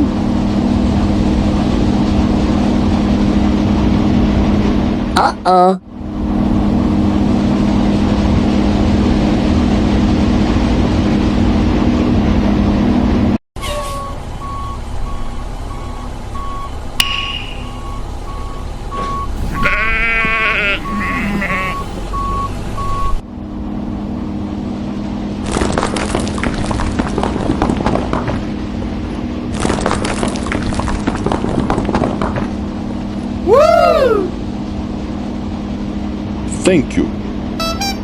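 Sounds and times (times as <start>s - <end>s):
vehicle engine drone: 0.0s - 38.0s
short high beeps: 15.8s - 23.2s, 37.6s - 38.0s
wavering cry: 19.4s - 22.1s, 33.4s - 34.4s.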